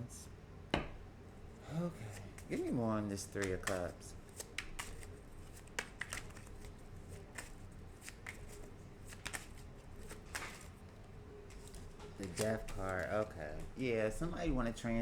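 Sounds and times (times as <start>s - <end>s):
cards being shuffled: 2.1s - 13.8s.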